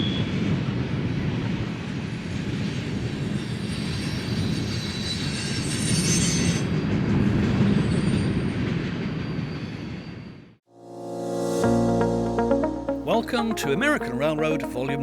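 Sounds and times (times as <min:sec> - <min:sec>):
high wheel squeal: 0:03.4 - 0:06.8.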